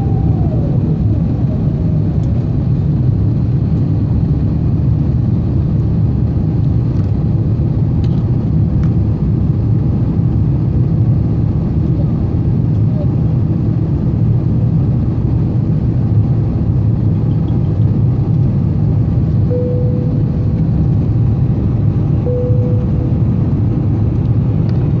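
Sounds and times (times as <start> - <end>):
airplane cabin rumble: 0.0 - 25.0
short steady tones: 19.5 - 20.8, 22.2 - 23.6.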